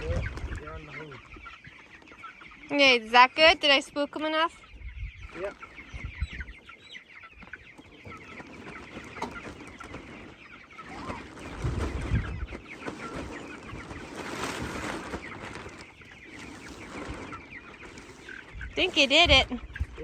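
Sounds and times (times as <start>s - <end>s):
chickens clucking: 0.0s - 20.0s
rustling: 8.0s - 19.6s.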